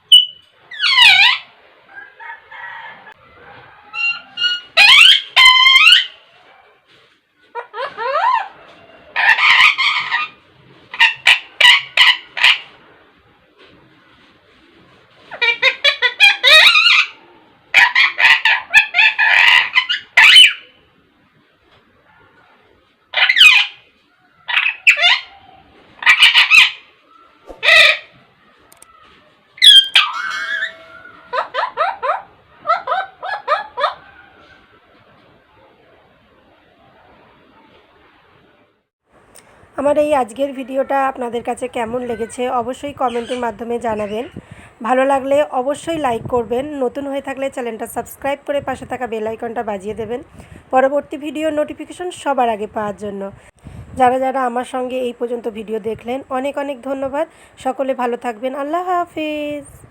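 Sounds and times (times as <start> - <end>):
parakeet screeching and squawking: 0.1 - 1.5, 3.9 - 6.2, 9.2 - 12.8, 15.3 - 20.8, 23.2 - 23.8, 24.5 - 25.4, 26.0 - 26.9, 27.6 - 28.1, 29.6 - 34.0, 43.0 - 44.6.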